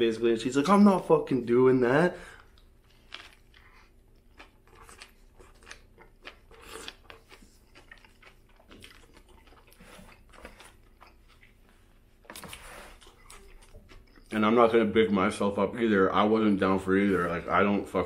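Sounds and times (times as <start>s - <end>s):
person chewing with crunches: 2.3s - 14.4s.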